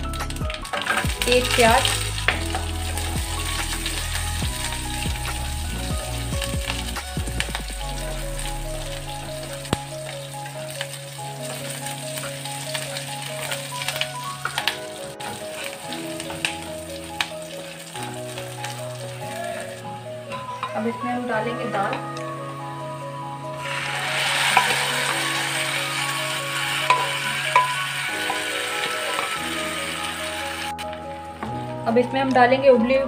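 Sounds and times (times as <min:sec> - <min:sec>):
onion sizzling in hot oil: 0:00.0 - 0:32.8
background music with held notes: 0:00.0 - 0:33.0
wooden spatula stirring: 0:26.8 - 0:29.8.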